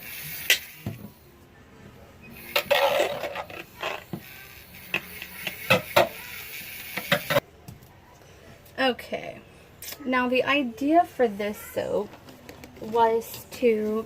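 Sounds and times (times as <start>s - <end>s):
handheld mini mixer running: 3.8s - 7.4s.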